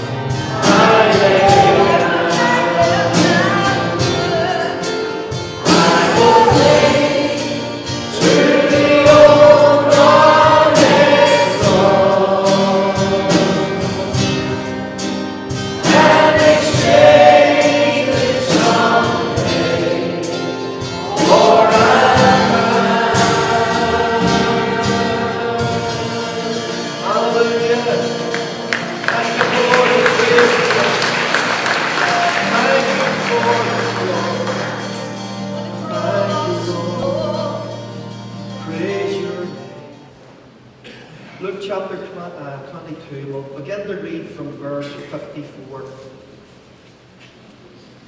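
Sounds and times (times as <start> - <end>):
congregation singing a hymn: 0.0 - 40.3
steady beat: 5.4 - 27.0.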